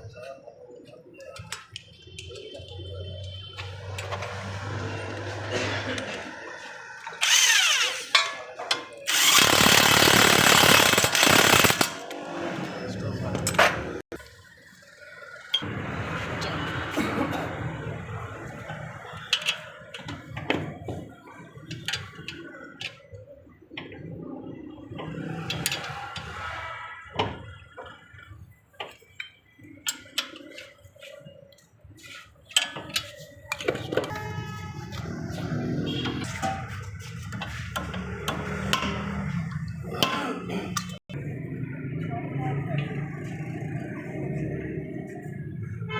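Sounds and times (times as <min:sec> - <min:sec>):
hand tools and metal parts clicking: 0:01.2 - 0:04.5, 0:07.0 - 0:12.2, 0:18.6 - 0:20.9, 0:21.5 - 0:23.2, 0:24.8 - 0:26.5, 0:28.7 - 0:35.1.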